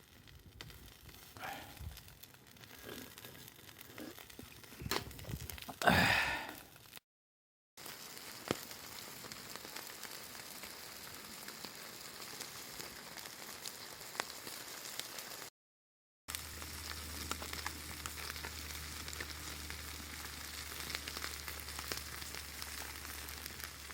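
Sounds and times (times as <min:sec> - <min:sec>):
food sizzling over a fire: 0:00.0 - 0:07.0, 0:07.8 - 0:15.5, 0:16.3 - 0:23.9
loud sigh-like exhale: 0:01.4 - 0:02.0, 0:05.7 - 0:06.7.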